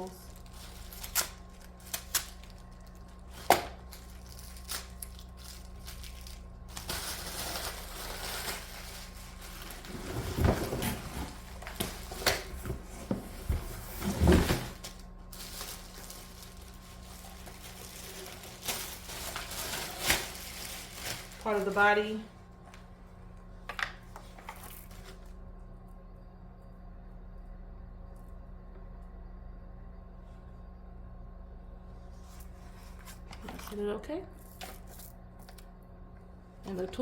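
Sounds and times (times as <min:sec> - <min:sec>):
packaging rustling: 0:00.2 - 0:22.1.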